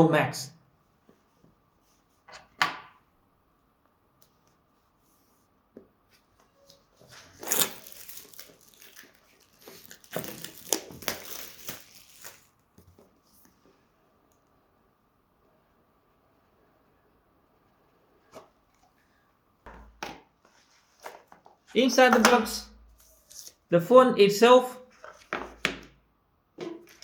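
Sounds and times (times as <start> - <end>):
packaging tearing and crinkling: 7.2 - 12.6.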